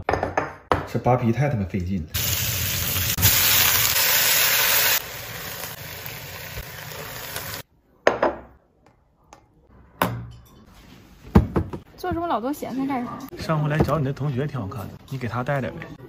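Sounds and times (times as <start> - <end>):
peppers sizzling in oil: 2.2 - 7.6.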